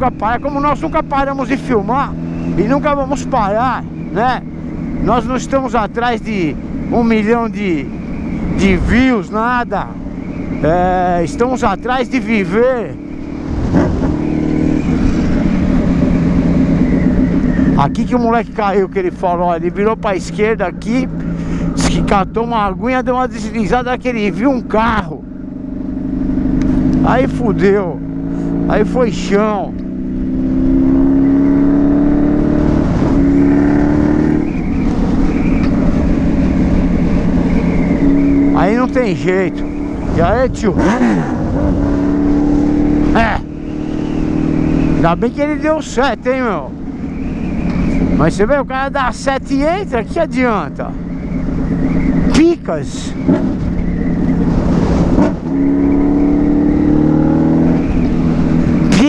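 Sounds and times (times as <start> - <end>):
motorcycle engine running: 0.0 - 59.0
wind noise on microphone: 39.6 - 42.8.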